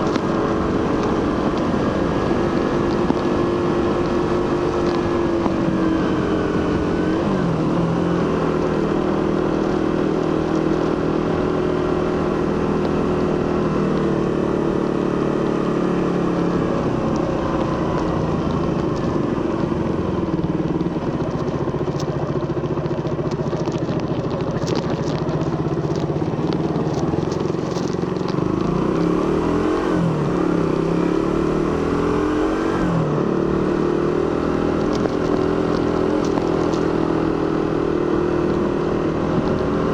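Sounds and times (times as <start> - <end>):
light crackling ticks: 0.0 - 7.4, 8.2 - 11.2, 12.1 - 14.2, 16.0 - 29.2, 33.6 - 38.8
motorcycle engine running: 0.0 - 39.9.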